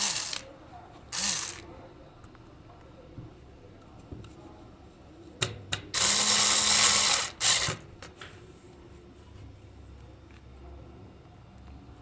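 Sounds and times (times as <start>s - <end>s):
small motor humming: 1.2s - 1.6s.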